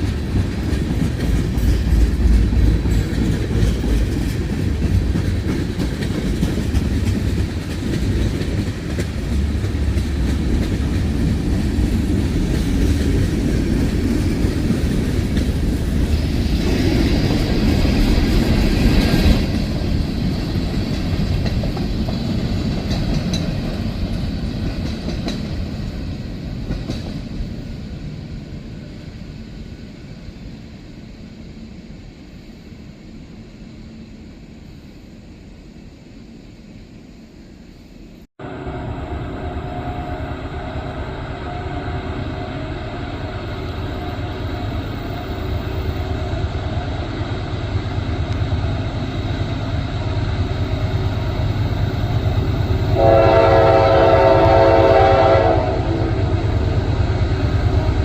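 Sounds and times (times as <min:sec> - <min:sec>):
train wheels clacking over rail joints: 0:00.0 - 0:27.4.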